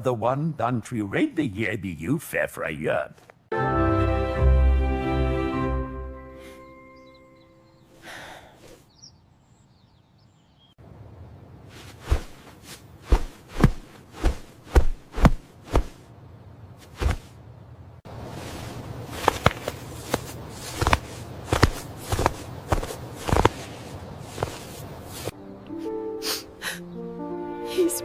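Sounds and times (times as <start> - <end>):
low steady background noise: 7.2 - 28.0
footsteps thudding: 11.8 - 16.0, 16.8 - 17.4, 19.2 - 25.3.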